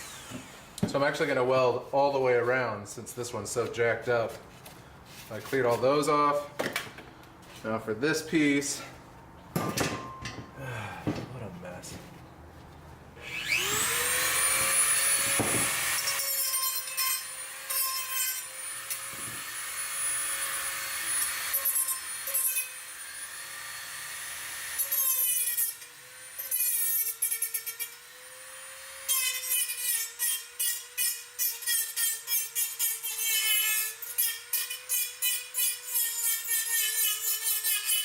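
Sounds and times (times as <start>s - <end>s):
angle grinder grinding steel: 0.0s - 0.8s, 13.2s - 38.0s.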